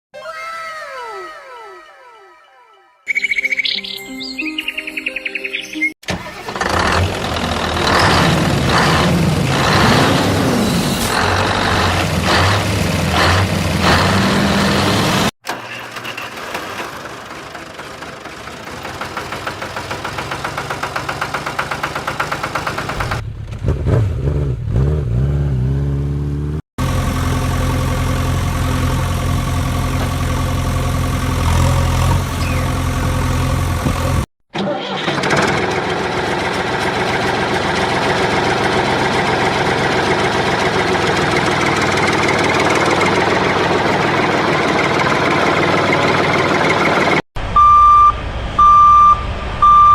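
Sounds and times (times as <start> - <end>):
engine idling: 6.2 - 9.8, 15.5 - 23.4, 26.8 - 34.2, 35.1 - 47.2
vehicle engine running and revving: 6.5 - 15.4, 16.5 - 34.3, 35.3 - 47.2.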